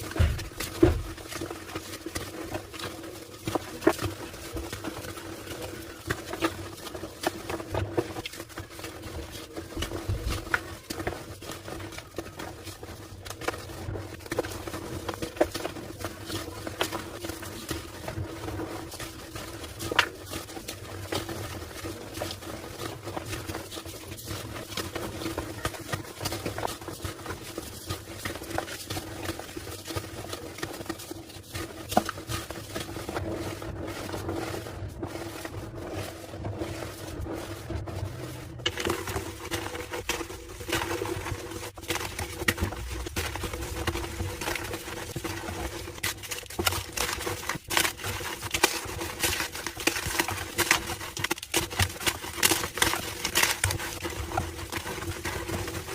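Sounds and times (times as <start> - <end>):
chalk crushed by hand: 27.7 - 55.9.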